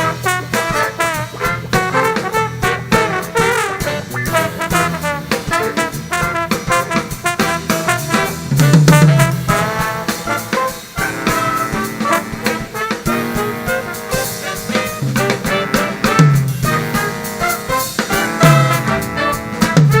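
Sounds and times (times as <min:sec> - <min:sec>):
jazz band playing: 0:00.0 - 0:20.0.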